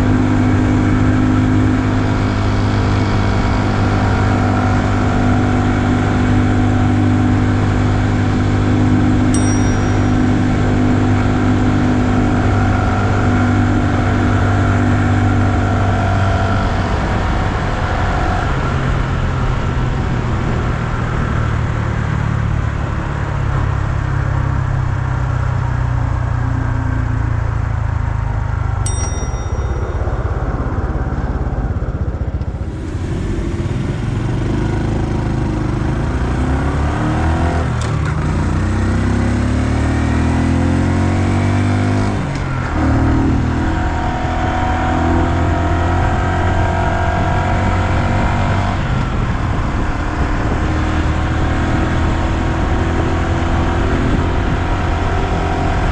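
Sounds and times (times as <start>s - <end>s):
motorcycle engine running: 0.0s - 23.0s, 23.7s - 36.6s.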